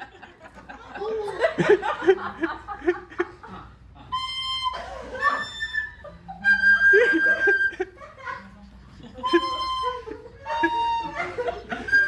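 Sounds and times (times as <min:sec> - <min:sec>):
flute long held notes: 0:04.1 - 0:07.8, 0:09.2 - 0:12.0.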